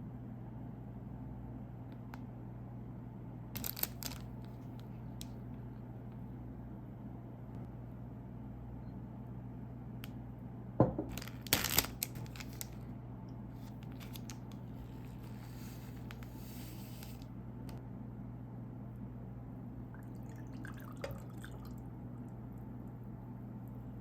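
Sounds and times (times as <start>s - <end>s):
steady low hum: 0.0s - 24.0s
plastic wrapper crackling and tearing: 3.6s - 4.6s, 11.1s - 12.8s, 13.6s - 16.3s.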